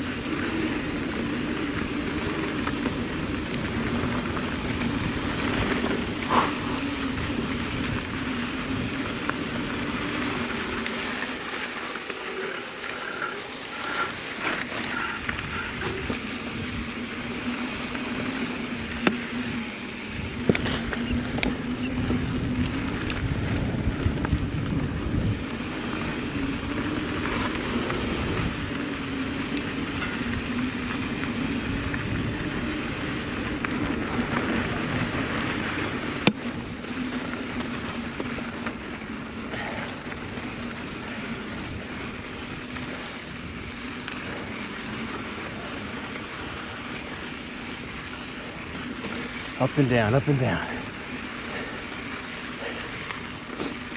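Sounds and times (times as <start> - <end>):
bike tyre and drivetrain noise: 0.0 - 53.9
wind on microphone: 14.9 - 36.9.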